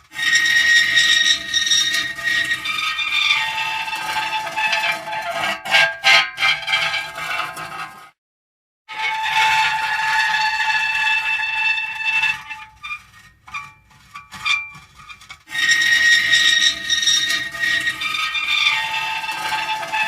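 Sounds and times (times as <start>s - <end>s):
metal creaking and squealing: 0.0s - 8.1s, 8.9s - 20.0s.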